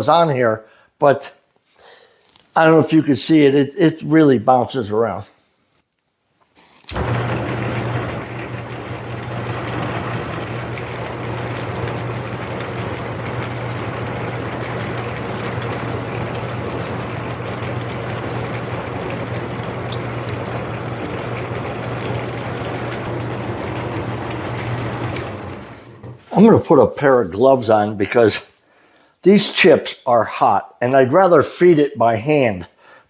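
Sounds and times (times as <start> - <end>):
lathe motor hum: 6.9 - 26.2
metal cutting noise: 6.9 - 26.2.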